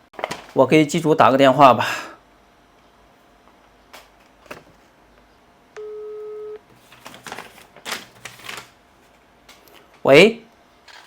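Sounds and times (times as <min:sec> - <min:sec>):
phone ringback beep: 0:05.8 - 0:06.6.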